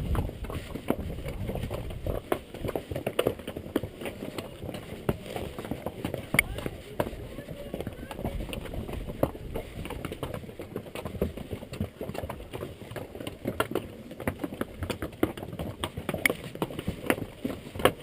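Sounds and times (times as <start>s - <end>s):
wind rumbling on microphone: 0.0s - 3.0s, 4.3s - 10.6s
hooves clip-clopping on rocks: 0.0s - 18.0s.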